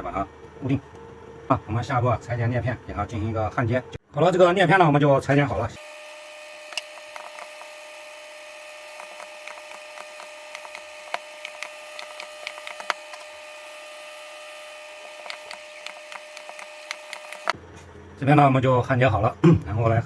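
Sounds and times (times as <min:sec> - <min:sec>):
steady high hum: 0:04.6 - 0:20.0
spot welder clicks: 0:15.0 - 0:17.6.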